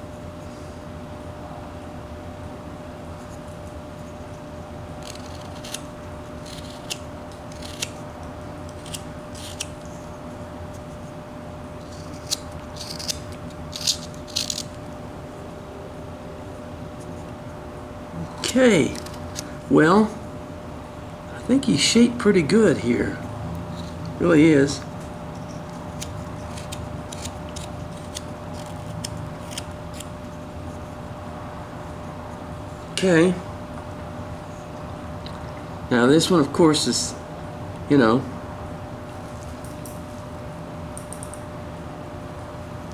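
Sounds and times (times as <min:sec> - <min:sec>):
steady low hum: 0:00.0 - 0:42.9
knife cutting wood shavings: 0:05.0 - 0:08.0, 0:08.6 - 0:10.0, 0:11.8 - 0:14.9, 0:18.3 - 0:19.7, 0:23.6 - 0:30.3
knife snicks cutting wood: 0:11.9 - 0:14.8.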